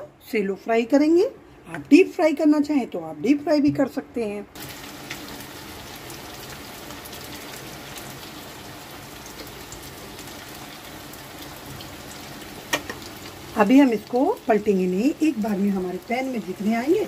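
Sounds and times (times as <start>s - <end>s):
dough frying in hot oil: 4.6s - 17.0s.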